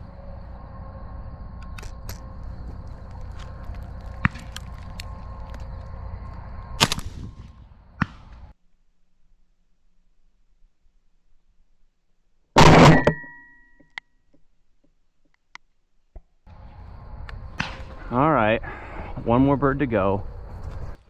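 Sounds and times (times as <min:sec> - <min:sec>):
low wind rumble on microphone: 0:00.0 - 0:08.5, 0:16.5 - 0:21.0
shotgun shots: 0:06.8 - 0:08.3, 0:12.6 - 0:13.2.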